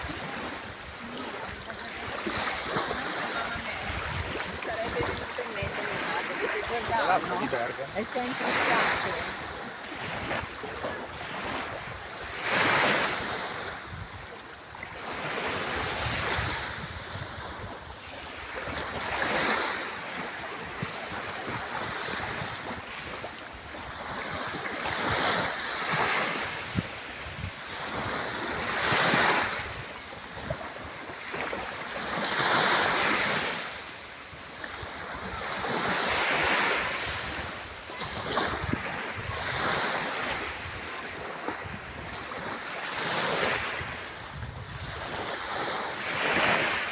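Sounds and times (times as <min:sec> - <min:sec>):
sea waves breaking on shore: 0:00.0 - 0:46.9.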